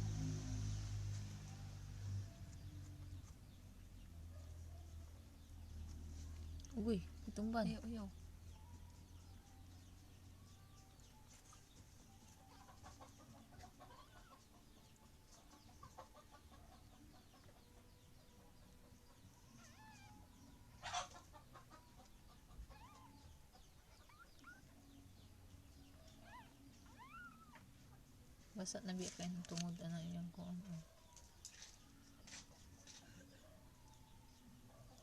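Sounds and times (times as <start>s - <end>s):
faint animal chirping calls: 19.5s - 21.0s, 22.7s - 24.8s, 26.1s - 27.7s.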